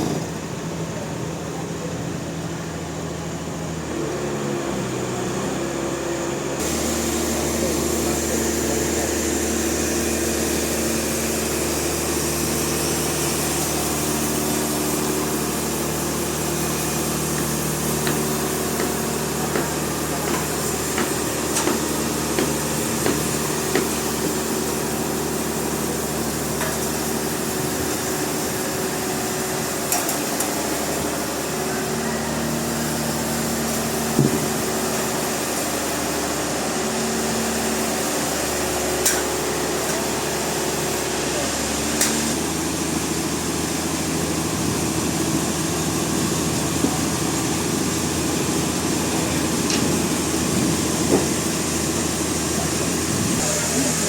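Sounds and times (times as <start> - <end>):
sawmill machinery humming: 0.0 - 54.0
knocks and clicks of wood and metal: 17.4 - 24.0.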